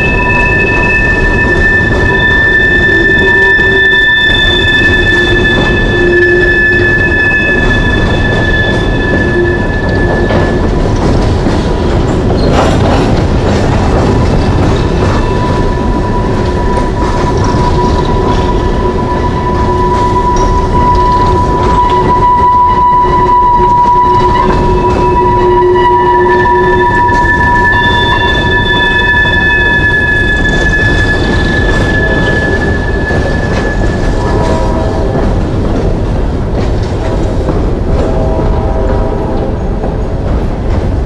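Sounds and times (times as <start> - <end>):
high-pitched wheel squeal: 0.0 - 10.7, 14.2 - 35.2
steel wheels rumbling on rail: 0.0 - 41.0.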